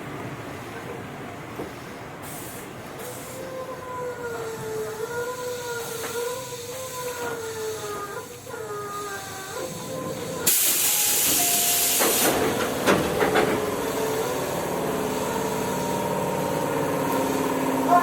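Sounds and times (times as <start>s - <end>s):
compressed air hiss: 10.5s - 12.4s.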